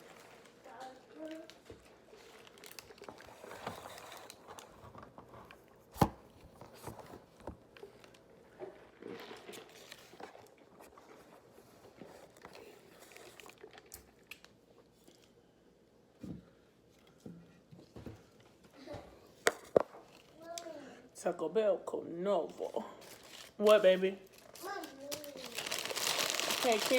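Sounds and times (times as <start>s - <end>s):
wrapper paper crinkling: 0.0s - 5.0s, 23.0s - 26.9s
taco being bitten and chewed: 12.1s - 15.4s.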